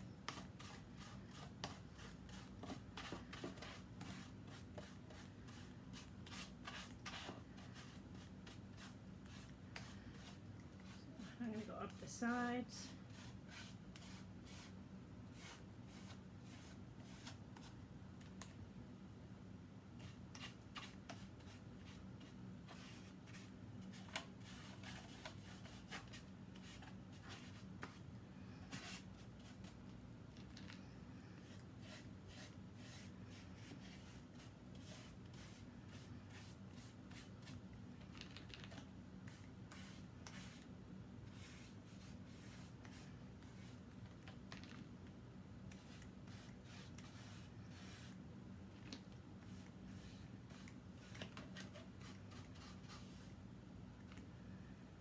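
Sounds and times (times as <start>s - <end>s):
low room hum: 0.0s - 55.0s
paintbrush scratching on plastic: 13.1s - 17.7s, 20.0s - 28.0s, 31.4s - 40.7s, 41.3s - 43.8s, 45.7s - 48.2s.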